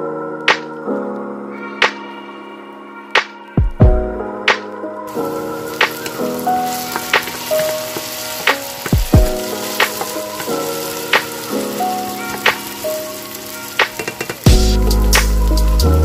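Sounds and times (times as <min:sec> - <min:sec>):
wooden spatula turning food: 0:05.1 - 0:15.8
potatoes sizzling in oil: 0:05.1 - 0:16.0.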